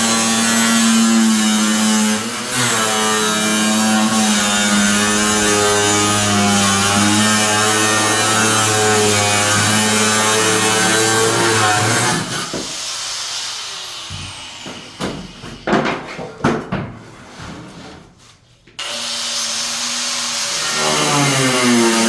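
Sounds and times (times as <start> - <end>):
hard tools knocking: 4.8 - 12.9, 14.0 - 17.1.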